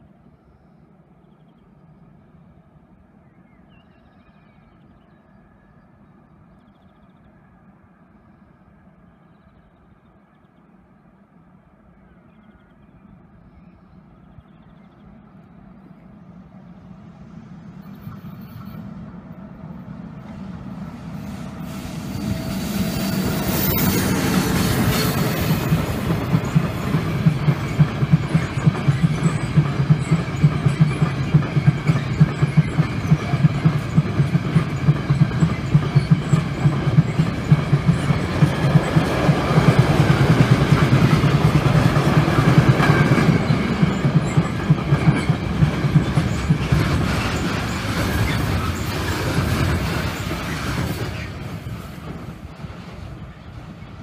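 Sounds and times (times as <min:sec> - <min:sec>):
freight train passing: 0:00.0 - 0:54.0
locomotive high-pitched hiss: 0:20.2 - 0:27.5.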